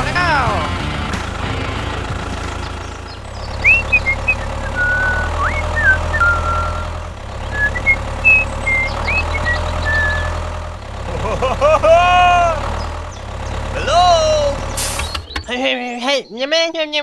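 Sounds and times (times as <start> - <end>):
small motor humming: 2.1 - 15.5
high whistling chirps: 2.6 - 10.5.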